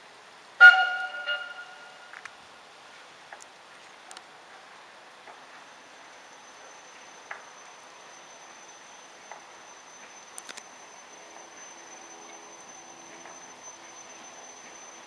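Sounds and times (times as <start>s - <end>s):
high-pitched whine: 5.5s - 15.0s.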